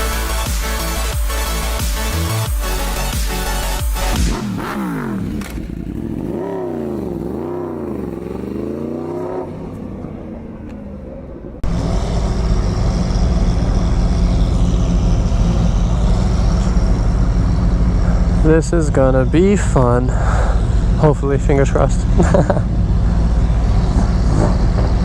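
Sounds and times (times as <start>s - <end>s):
engine idling rumble: 0.0s - 25.0s
engine revving: 0.0s - 25.0s.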